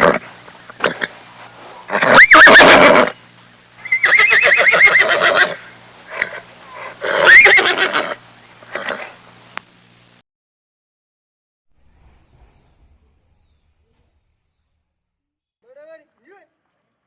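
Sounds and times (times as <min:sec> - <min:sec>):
horse whinnying: 0:00.0 - 0:01.2, 0:01.8 - 0:03.2, 0:03.8 - 0:09.2.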